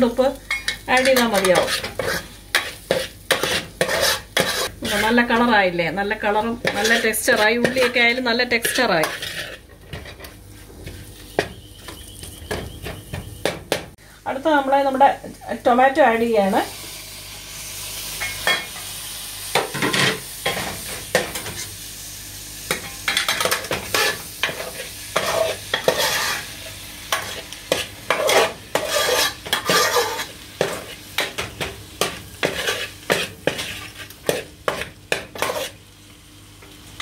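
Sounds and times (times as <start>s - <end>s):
food sizzling in pan: 0.0s - 37.0s
metal spoon scraping pan: 0.5s - 5.5s, 6.6s - 11.1s, 22.8s - 26.4s, 27.1s - 31.4s, 32.0s - 35.8s.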